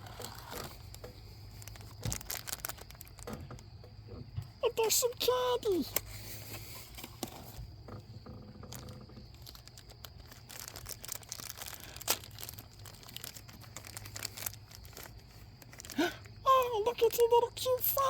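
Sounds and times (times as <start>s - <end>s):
packaging rustling: 0.0s - 3.6s, 8.4s - 16.4s.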